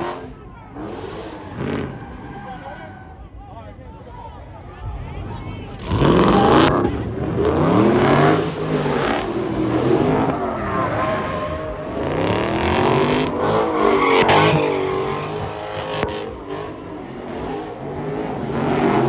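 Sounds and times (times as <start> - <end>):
tyres spinning on asphalt: 0.0 - 3.4, 5.7 - 19.0
car engine revving: 5.7 - 19.0.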